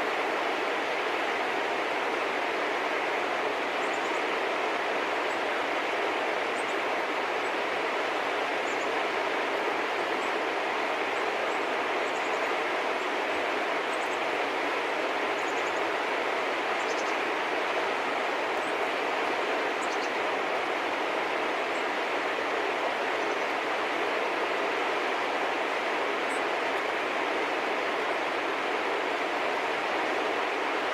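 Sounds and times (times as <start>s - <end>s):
small birds chirping: 16.8s - 17.2s, 19.8s - 20.2s.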